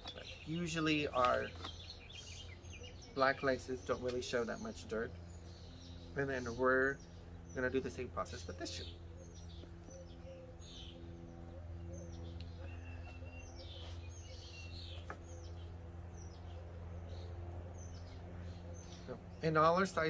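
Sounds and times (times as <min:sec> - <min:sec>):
faint steady hum: 0:00.0 - 0:20.0
small birds chirping: 0:00.0 - 0:20.0.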